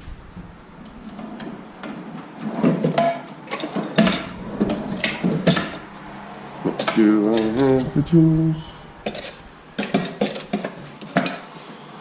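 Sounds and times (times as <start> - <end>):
metallic clicks and clanks: 9.0 - 11.5.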